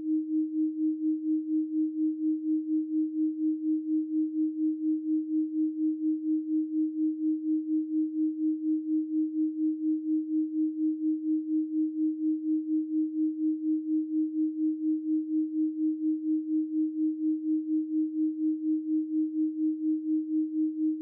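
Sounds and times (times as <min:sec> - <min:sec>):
pulsing sine tone: 0:00.0 - 0:21.0.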